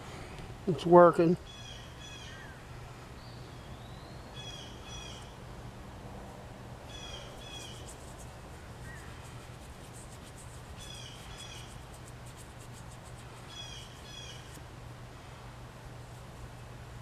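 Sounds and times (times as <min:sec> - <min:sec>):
steady low hum: 0:00.0 - 0:17.0
faint scratchy rubbing: 0:07.4 - 0:13.6.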